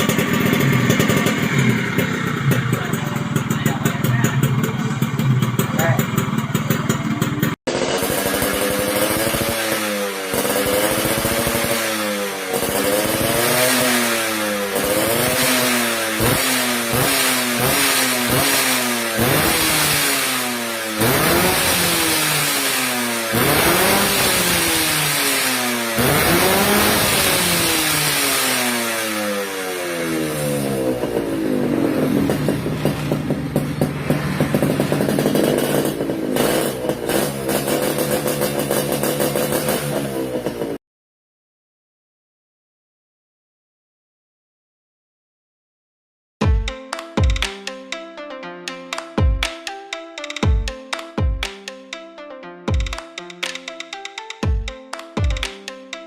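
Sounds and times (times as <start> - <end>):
motorcycle engine revving: 0.0 - 40.8.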